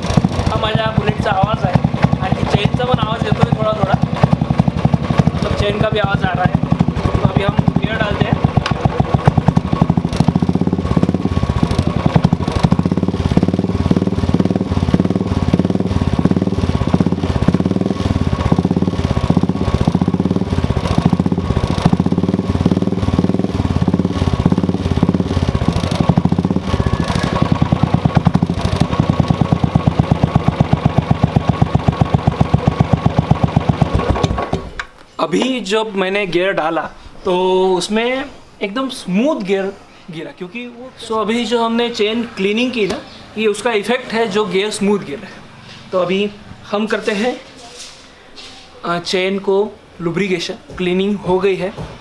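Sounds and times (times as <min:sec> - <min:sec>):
motorcycle engine running: 0:00.0 - 0:34.8.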